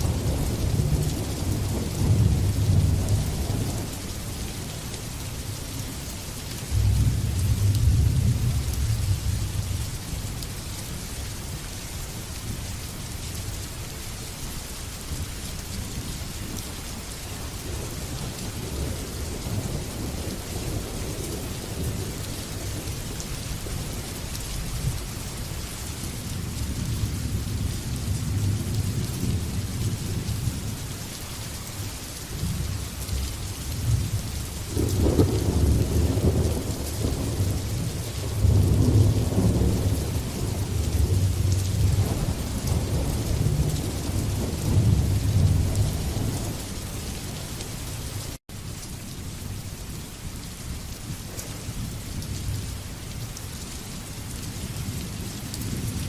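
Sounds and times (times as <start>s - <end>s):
rolling thunder: 0.0s - 4.1s, 6.7s - 9.8s, 33.8s - 47.3s
heavy rain: 0.0s - 56.0s.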